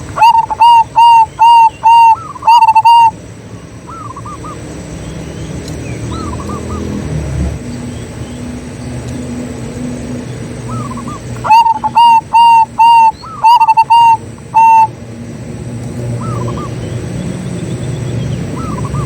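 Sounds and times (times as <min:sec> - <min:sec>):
dove cooing: 0:00.0 - 0:03.2, 0:10.6 - 0:14.9, 0:16.0 - 0:17.1, 0:18.5 - 0:19.0.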